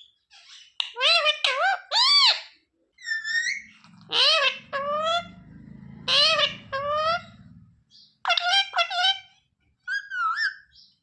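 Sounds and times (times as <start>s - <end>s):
parrot talking: 0.8s - 7.5s, 8.2s - 10.7s.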